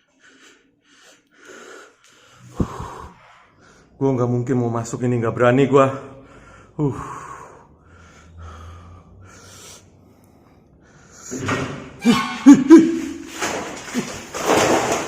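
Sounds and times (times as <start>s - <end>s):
breathy exhalations and sighs: 0.0s - 4.0s, 6.2s - 11.5s
man breathing heavily: 0.0s - 4.0s, 6.1s - 11.4s.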